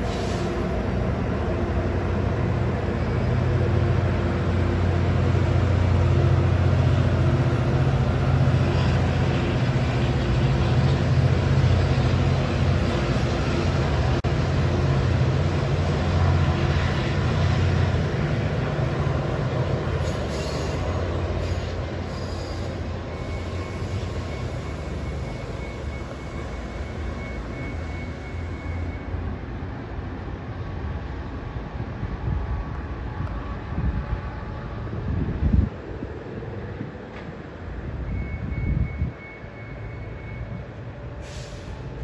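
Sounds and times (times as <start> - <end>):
train rumbling past on rails: 0.0 - 42.0
faint wheel squeal: 20.0 - 29.2, 38.1 - 41.9.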